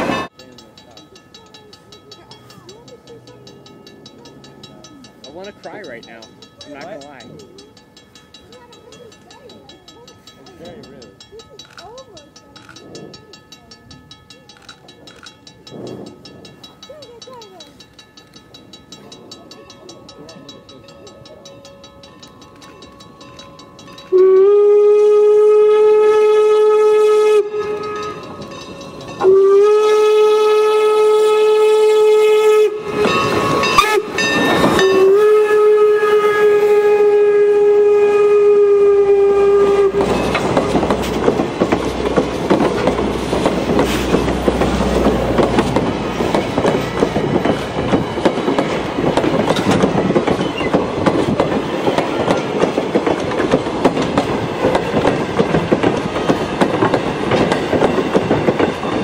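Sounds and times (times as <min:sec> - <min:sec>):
wheels clattering over rail joints: 0:00.0 - 0:24.2, 0:32.8 - 0:35.2, 0:39.6 - 0:59.0
train rumbling past: 0:00.0 - 0:59.0
steam locomotive whistle blasts: 0:24.1 - 0:28.3, 0:29.2 - 0:40.4.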